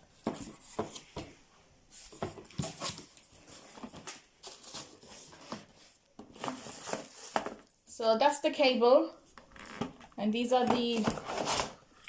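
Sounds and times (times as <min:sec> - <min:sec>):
cardboard packaging rustling: 0:00.1 - 0:01.3, 0:01.9 - 0:07.8, 0:09.3 - 0:11.9
plastic wrapping crinkling: 0:02.0 - 0:07.7.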